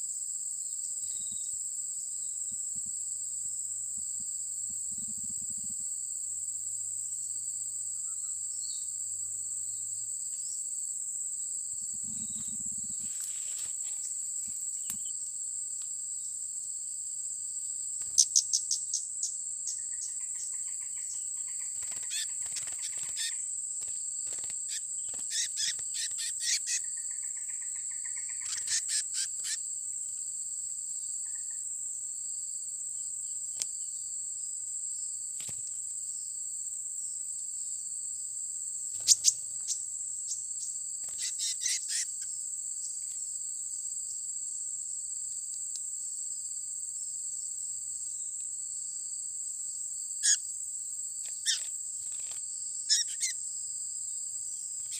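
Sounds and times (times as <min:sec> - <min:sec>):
high-pitched insect drone: 0:00.0 - 0:34.1, 0:37.6 - 0:45.2, 0:46.0 - 0:54.9
chattering bird trills: 0:21.5 - 0:23.4, 0:24.7 - 0:27.0, 0:28.0 - 0:29.6, 0:39.0 - 0:39.4, 0:41.1 - 0:42.1, 0:52.9 - 0:53.3.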